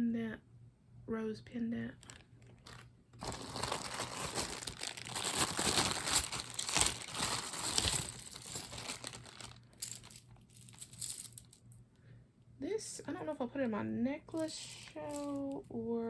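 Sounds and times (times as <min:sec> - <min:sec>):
plastic bag crinkling: 0:02.0 - 0:11.5.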